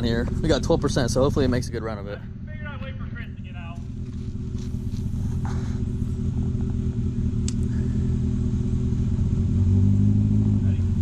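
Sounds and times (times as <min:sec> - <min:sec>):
utv engine running: 0:00.0 - 0:11.0
sharp tick: 0:07.4 - 0:07.7.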